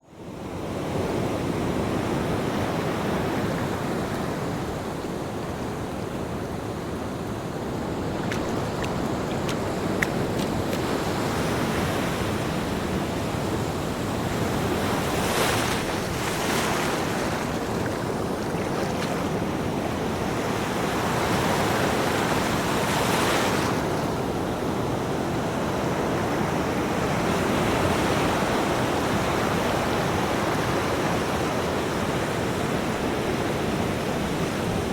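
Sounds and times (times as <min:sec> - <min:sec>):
ocean waves surging: 0:02.0 - 0:25.1.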